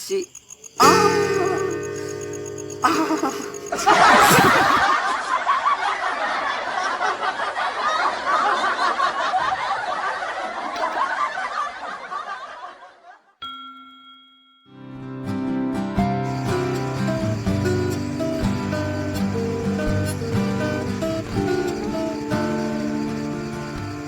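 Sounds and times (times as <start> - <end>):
guitar: 0.8 - 5.2, 14.7 - 24.0
people laughing hard: 2.8 - 13.3.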